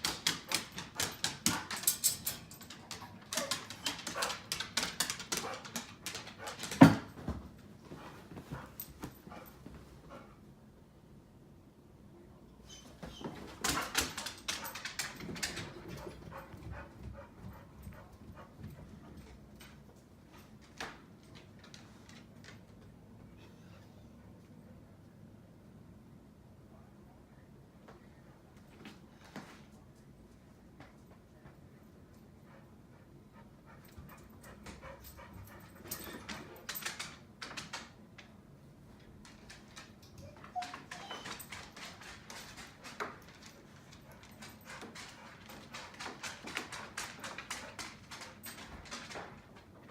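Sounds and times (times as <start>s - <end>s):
dog scratching and clicking: 0.0s - 6.8s, 40.6s - 49.4s
dog panting: 15.6s - 19.3s, 32.4s - 36.5s.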